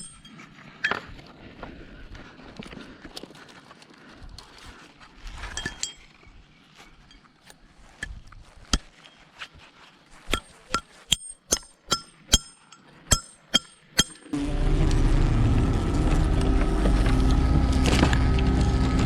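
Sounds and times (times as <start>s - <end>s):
metal being struck: 0.0s - 0.3s, 10.3s - 18.2s.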